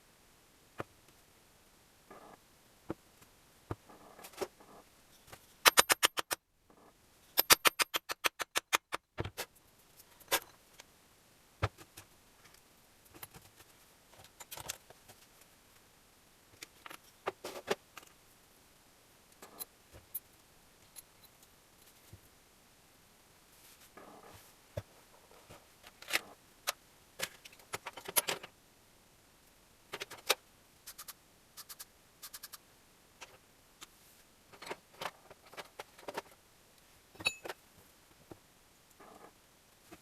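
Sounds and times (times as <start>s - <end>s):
metal tools clinking: 7.4s - 8.0s, 37.2s - 37.6s.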